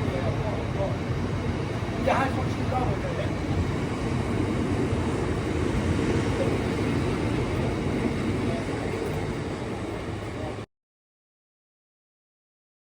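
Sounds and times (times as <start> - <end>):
freight train wheels rumbling on rail: 0.0 - 10.7.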